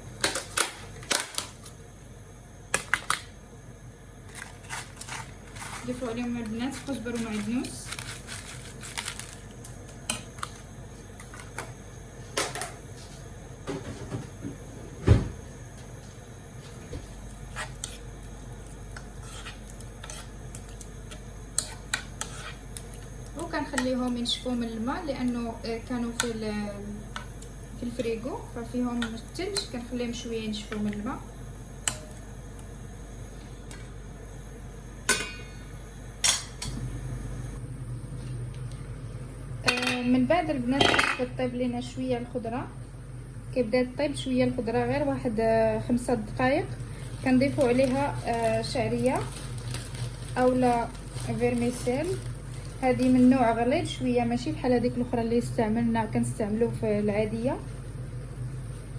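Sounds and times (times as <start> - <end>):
low steady hum: 0.0 - 58.9
heavy thump: 13.7 - 15.5.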